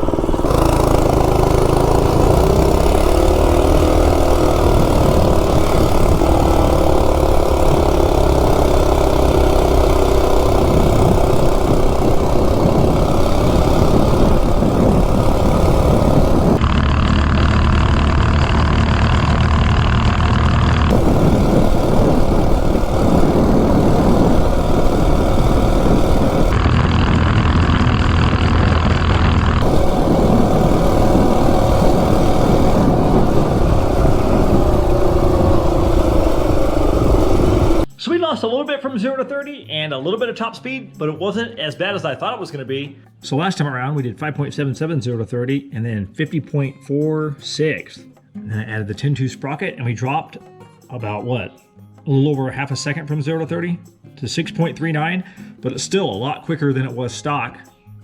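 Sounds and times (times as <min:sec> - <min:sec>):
minibike engine at full throttle: 0:00.0 - 0:37.9.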